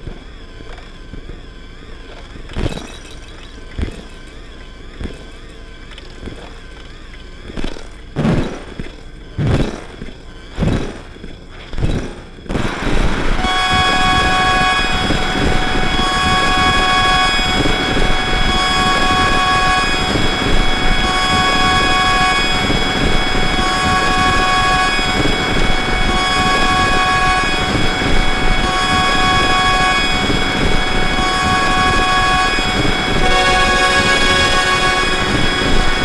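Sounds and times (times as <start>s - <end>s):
dense electronic noise wall: 4.3s - 36.0s
sustained high tones: 12.6s - 36.0s.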